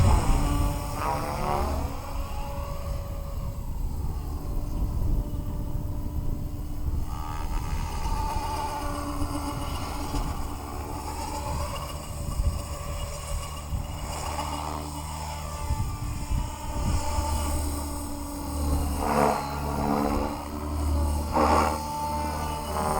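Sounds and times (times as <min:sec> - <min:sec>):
low rumble: 0:00.0 - 0:02.0
rc helicopter motor whine: 0:00.0 - 0:22.9.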